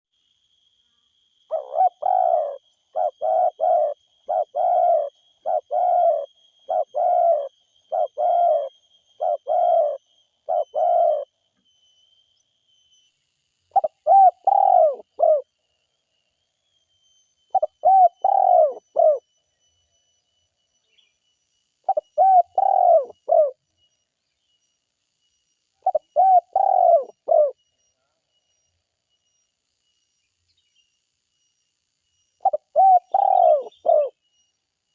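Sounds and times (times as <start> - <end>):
dove cooing: 1.5 - 11.3, 13.7 - 15.4, 17.5 - 19.2, 21.9 - 23.6, 25.8 - 27.6, 32.4 - 34.1.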